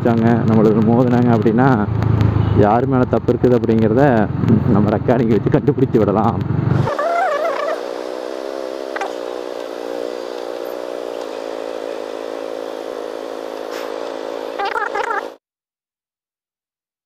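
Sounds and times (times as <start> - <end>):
motorcycle engine idling: 8.9 - 14.6.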